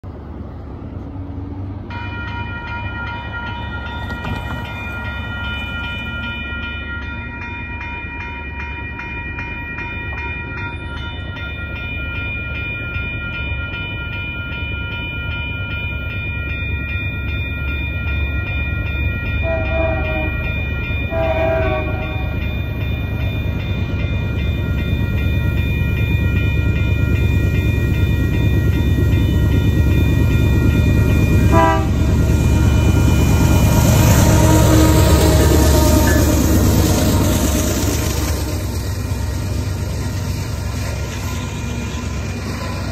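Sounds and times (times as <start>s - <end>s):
level-crossing warning bell: 1.9s - 42.9s
diesel locomotive rumble: 18.0s - 42.9s
locomotive air horn blasts: 19.4s - 20.4s, 21.1s - 22.4s, 31.5s - 37.2s.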